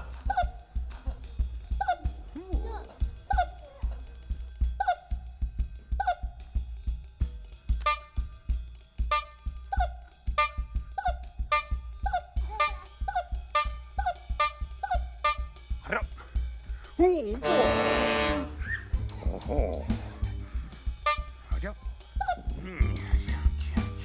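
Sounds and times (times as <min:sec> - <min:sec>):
instrumental music with drum beat: 0:00.0 - 0:24.0.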